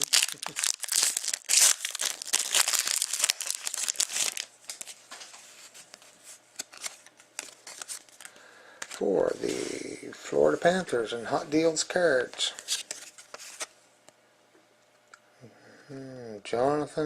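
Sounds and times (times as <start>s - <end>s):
wrapper crinkling and tearing: 0.0s - 5.0s, 6.6s - 8.3s.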